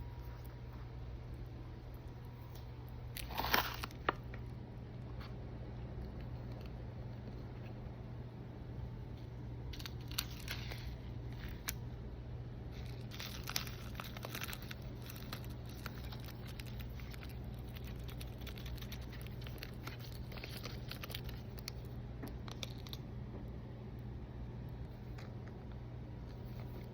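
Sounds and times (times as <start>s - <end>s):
steady low hum: 0.0s - 26.9s
packaging crinkling and tearing: 3.1s - 4.3s, 9.7s - 11.8s, 12.7s - 23.0s.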